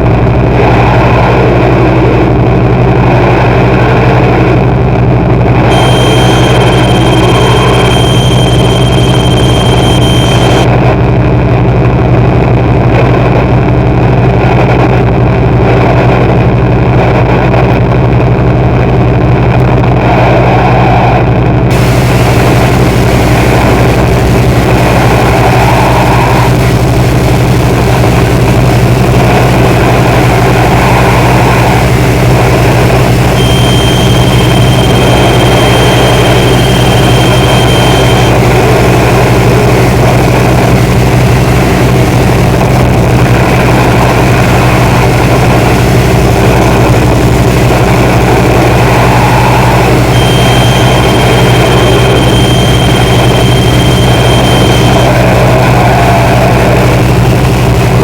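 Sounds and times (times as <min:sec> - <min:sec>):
loud droning hum: 0:00.0 - 0:58.0
thin high tone: 0:05.7 - 0:10.6, 0:33.0 - 0:38.4, 0:48.8 - 0:55.2.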